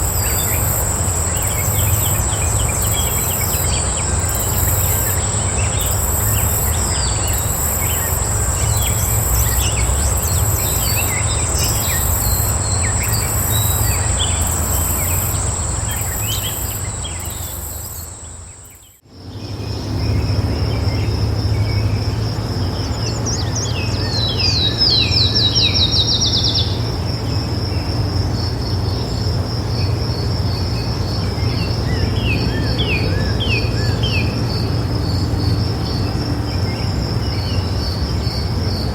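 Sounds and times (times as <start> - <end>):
low steady rumble: 0.0 - 18.7
bird chirps: 0.0 - 18.9
high insect trill: 0.0 - 19.0
pulsing insect trill: 0.0 - 19.0.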